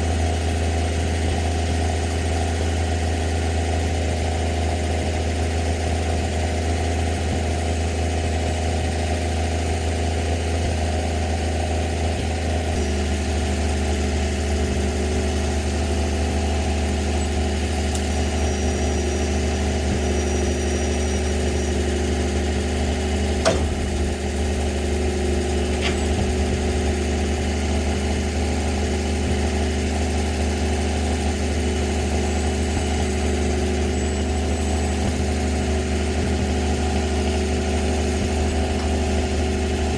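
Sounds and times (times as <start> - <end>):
truck engine idling: 0.0 - 39.9
sharp knock: 23.4 - 23.8.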